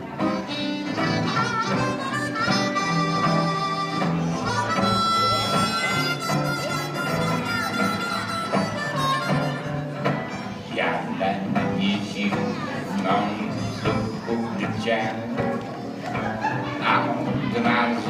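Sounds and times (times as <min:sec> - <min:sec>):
band accompaniment: 0:00.0 - 0:18.0
harmonica solo: 0:00.2 - 0:10.1, 0:13.5 - 0:14.3.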